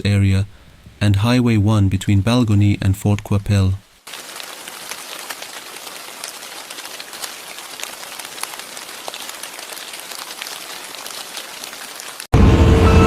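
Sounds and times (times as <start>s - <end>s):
precipitation pattering on a surface: 4.0s - 12.3s.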